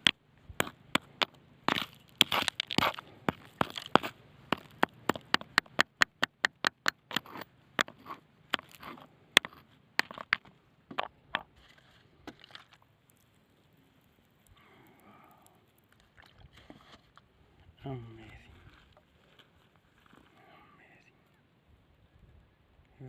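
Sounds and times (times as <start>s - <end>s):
stones knocking and crunching: 0.0s - 13.4s.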